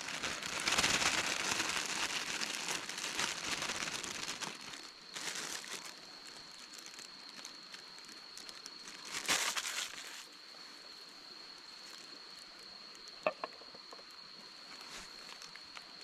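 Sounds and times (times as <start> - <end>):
rustling crinkling handling noise: 0.0 - 10.3, 14.7 - 16.0.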